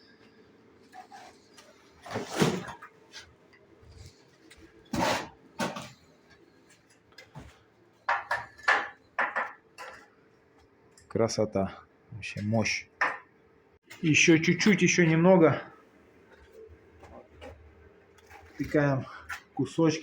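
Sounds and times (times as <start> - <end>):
scrapes and knocks on masonry: 4.8 - 6.0.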